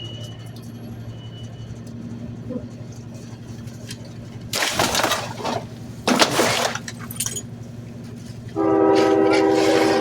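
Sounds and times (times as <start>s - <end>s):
garbage truck engine running: 0.0s - 10.0s
trash and glass crashing: 4.6s - 7.5s
loud steady horn-like tone: 8.5s - 10.0s.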